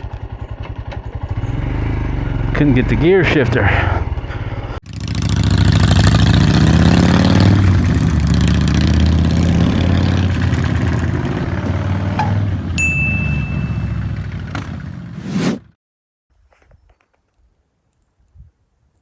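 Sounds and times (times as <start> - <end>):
single-cylinder motorcycle engine: 0.0 - 3.2, 4.0 - 15.2.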